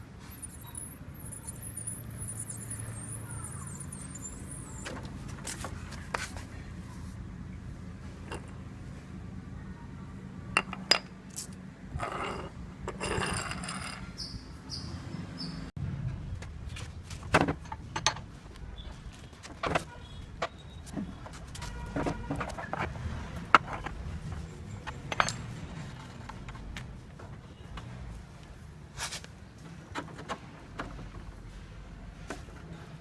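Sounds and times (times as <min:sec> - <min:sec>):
short high squeaks: 0:00.2 - 0:05.0
metallic clicks and clinks: 0:24.6 - 0:27.0.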